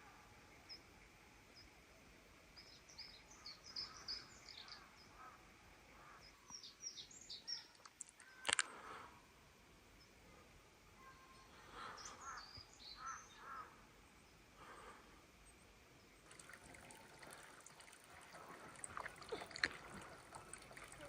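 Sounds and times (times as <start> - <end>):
quiet bird calls: 0.0 - 9.2, 10.0 - 21.0
water trickling: 16.0 - 21.0
water dripping: 16.2 - 21.0.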